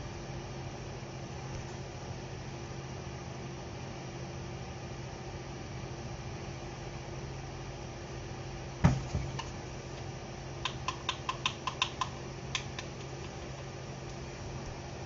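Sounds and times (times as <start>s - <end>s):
steady low hum: 0.0s - 15.0s
sharp knock: 8.8s - 9.3s.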